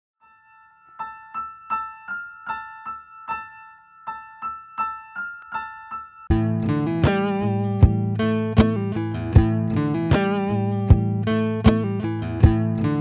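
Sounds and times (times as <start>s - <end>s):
repeated keyboard notes: 0.9s - 13.0s.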